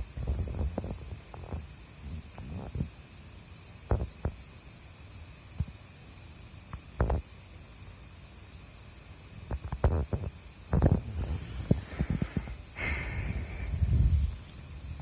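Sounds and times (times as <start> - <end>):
night insects trilling: 0.0 - 15.0
rustles: 9.4 - 15.0.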